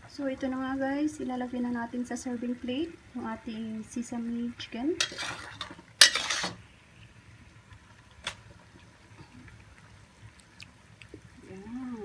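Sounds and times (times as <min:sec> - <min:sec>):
spatula scraping a pan: 0:05.0 - 0:06.6.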